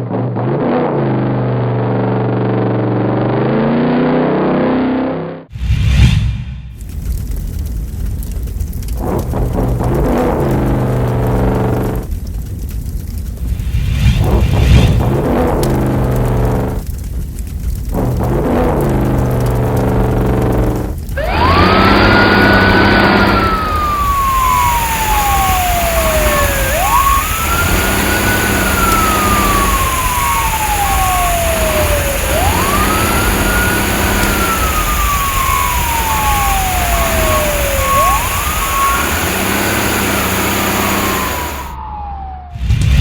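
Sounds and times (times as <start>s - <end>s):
steady rumble: 5.5s - 43.0s
wailing siren: 17.9s - 43.0s.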